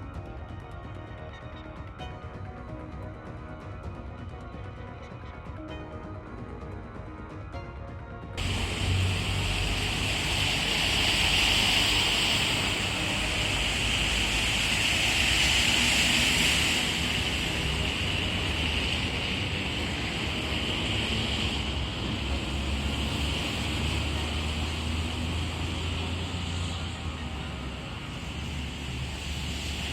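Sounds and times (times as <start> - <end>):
low rumble: 8.4 - 26.0
passing traffic: 8.4 - 29.9
rushing water: 8.4 - 29.9.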